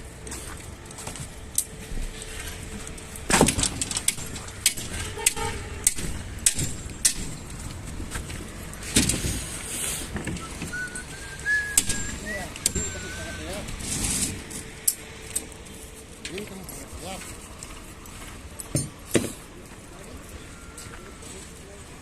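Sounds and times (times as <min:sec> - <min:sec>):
sharp knocks and clicks: 0:03.3 - 0:09.4.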